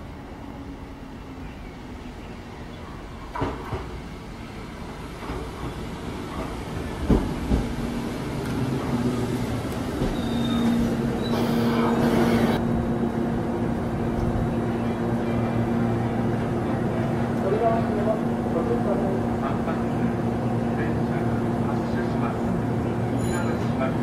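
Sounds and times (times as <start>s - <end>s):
electric train hum: 0.0s - 24.0s
train wheels clunking: 3.2s - 4.0s, 5.1s - 12.6s.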